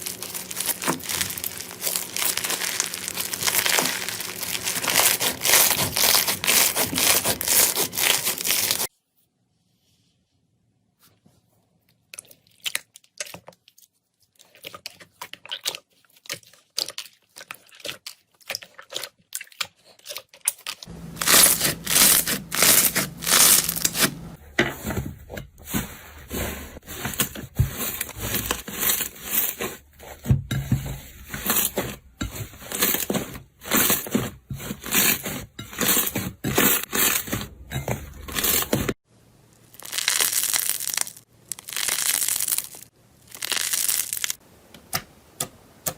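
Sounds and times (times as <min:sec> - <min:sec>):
slime crackling and popping: 0:00.0 - 0:08.9, 0:20.5 - 0:24.2, 0:39.6 - 0:44.4.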